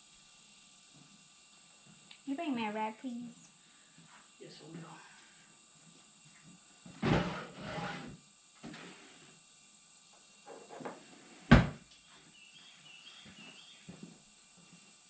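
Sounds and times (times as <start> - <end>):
faint high chirps: 12.0 - 14.0.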